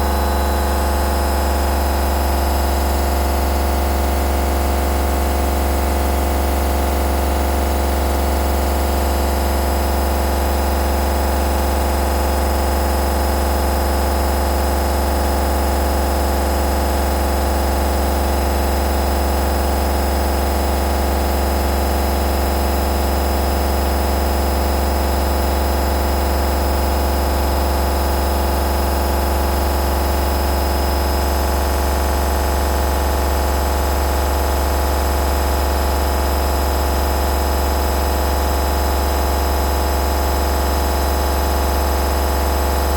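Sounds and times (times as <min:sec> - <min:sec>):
washing machine humming: 0:00.0 - 0:15.6.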